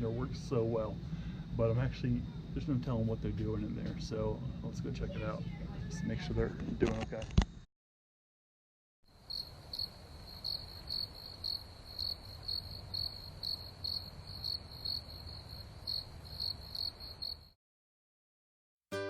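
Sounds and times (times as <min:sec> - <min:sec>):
crickets chirping: 0:00.0 - 0:07.0, 0:09.1 - 0:17.6.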